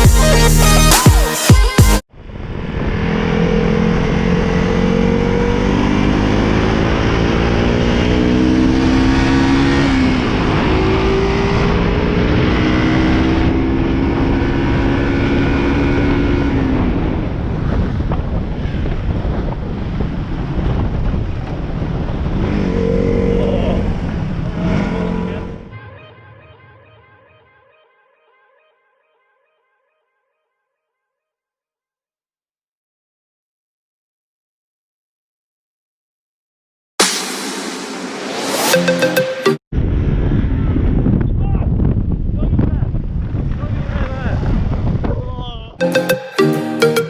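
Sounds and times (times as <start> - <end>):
wind rush on microphone: 15.4 - 24.7, 39.7 - 45.8.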